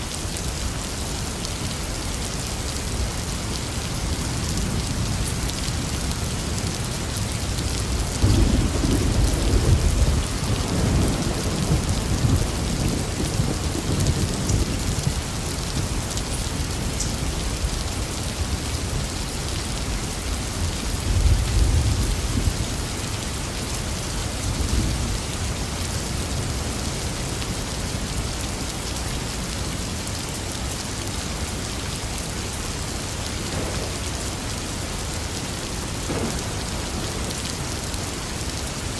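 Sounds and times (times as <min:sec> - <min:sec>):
rain falling: 0:00.0 - 0:38.9
thunder rumbling: 0:07.9 - 0:16.0, 0:33.3 - 0:35.2, 0:35.8 - 0:38.9.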